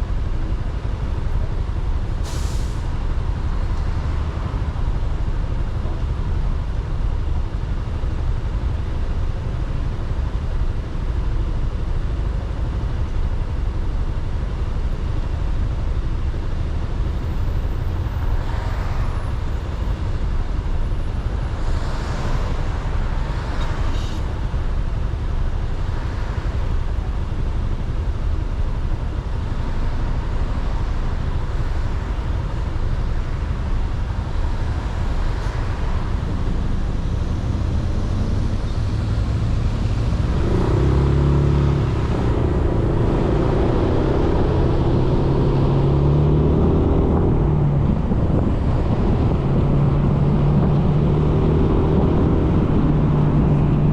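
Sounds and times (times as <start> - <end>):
passing vehicles: 0.0 - 53.9
road noise: 0.0 - 53.9
traffic noise: 0.0 - 53.9
wind rumble: 31.3 - 53.9.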